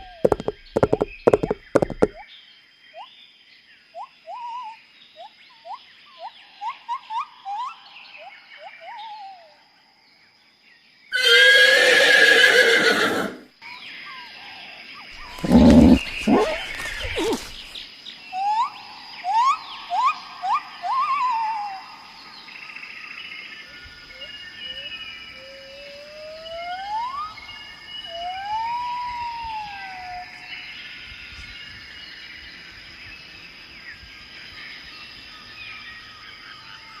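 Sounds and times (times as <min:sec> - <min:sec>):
horse whinnying: 0:11.2 - 0:13.4, 0:15.2 - 0:17.7
deeper short horse call: 0:15.2 - 0:17.7.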